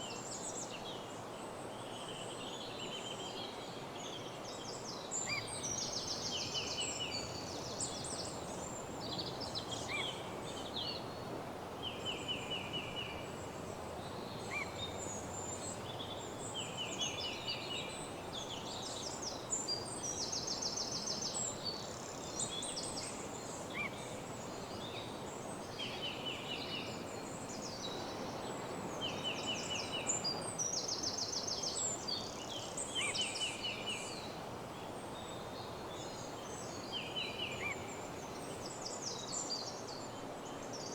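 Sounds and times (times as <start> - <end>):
songbirds trilling and chirping: 5.2 - 39.8.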